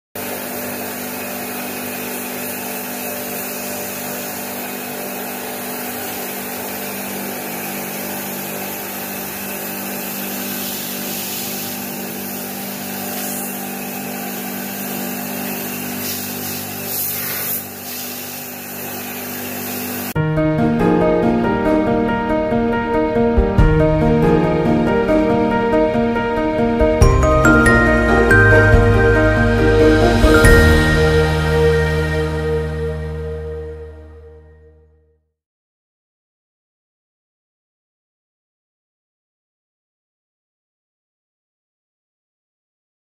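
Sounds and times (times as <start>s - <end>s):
electric motor humming: 0.2s - 20.2s.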